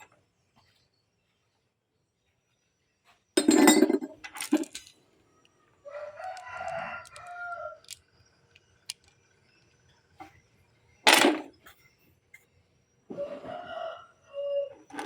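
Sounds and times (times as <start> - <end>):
rooster crowing: 5.8 - 7.9, 13.1 - 14.9.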